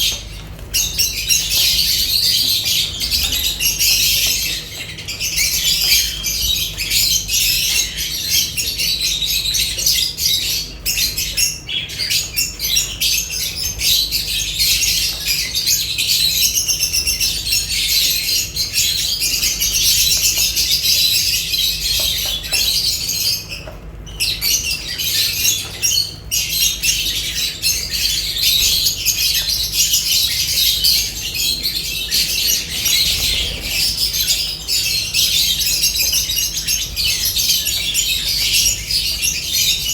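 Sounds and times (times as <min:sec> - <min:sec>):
birds chirping and squawking: 0:00.0 - 0:39.9.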